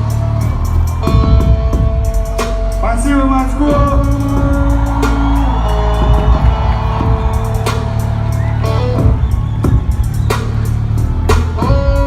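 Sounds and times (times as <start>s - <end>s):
guitar: 0.0s - 12.0s
drum hits: 3.7s - 10.6s.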